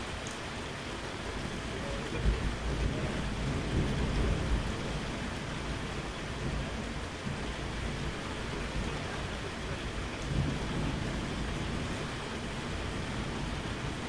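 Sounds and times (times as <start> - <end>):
steady rainfall: 0.0 - 14.0
low thunder rumbling: 1.3 - 14.0.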